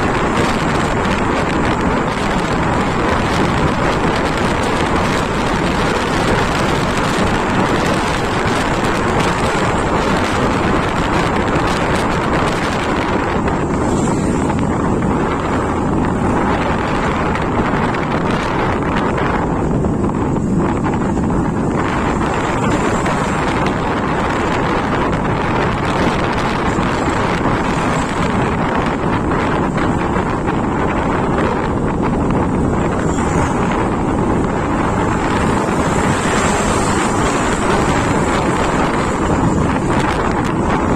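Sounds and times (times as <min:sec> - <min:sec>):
motorcycle engine: 0:00.0 - 0:40.9
wind and road noise: 0:00.0 - 0:40.9
wind buffeting microphone: 0:00.0 - 0:40.9.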